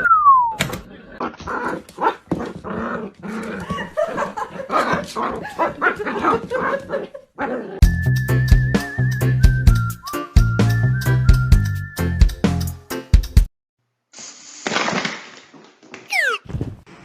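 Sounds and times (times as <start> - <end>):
dog barking yipping and whining: 16.1 - 16.5.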